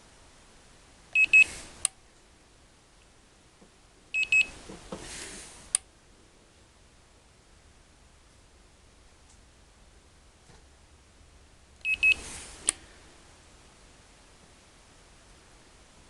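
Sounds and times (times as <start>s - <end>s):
thermometer beeping: 1.2s - 1.5s, 4.1s - 4.6s, 11.8s - 12.2s.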